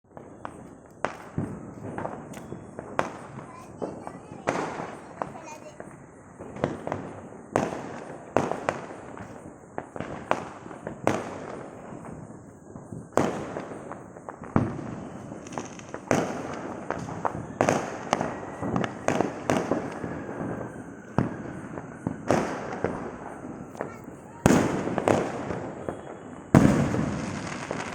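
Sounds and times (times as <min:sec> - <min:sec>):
firecrackers banging: 0:00.1 - 0:27.9.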